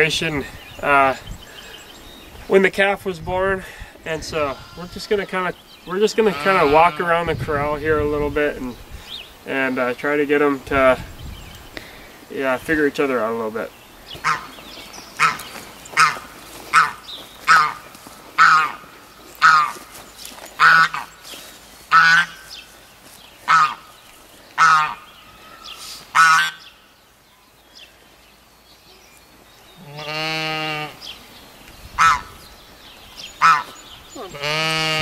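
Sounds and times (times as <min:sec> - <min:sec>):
farm bird honking: 0:04.4 - 0:07.3, 0:14.2 - 0:14.6, 0:15.2 - 0:15.4, 0:16.0 - 0:19.9, 0:20.6 - 0:21.1, 0:21.9 - 0:22.6, 0:23.5 - 0:23.9, 0:24.6 - 0:26.8, 0:29.8 - 0:31.1, 0:32.0 - 0:32.4, 0:33.4 - 0:35.0
long drawn-out animal call: 0:24.6 - 0:26.7, 0:29.8 - 0:31.0, 0:33.4 - 0:35.0.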